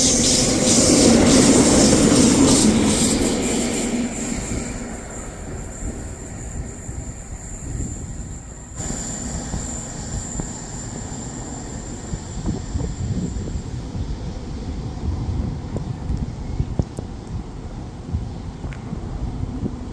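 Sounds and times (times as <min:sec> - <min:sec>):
high-pitched whine: 0:00.0 - 0:14.1
train rumbling past: 0:00.0 - 0:19.9.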